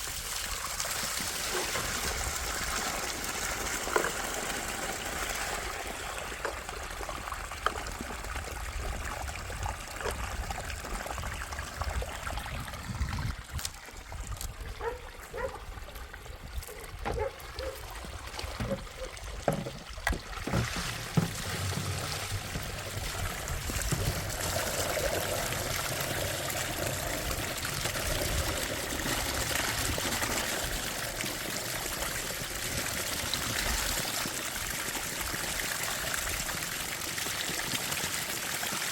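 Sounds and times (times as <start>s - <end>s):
water trickling: 0.0s - 38.5s.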